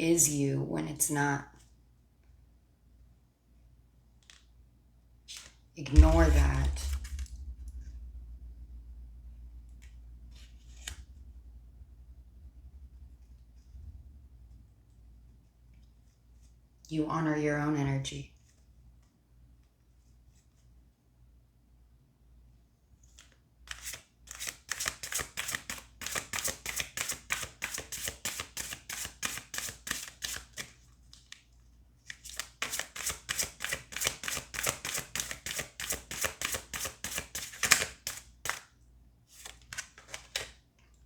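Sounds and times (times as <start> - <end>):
cards being shuffled by hand: 10.3 - 11.1, 23.1 - 38.7, 39.3 - 40.6.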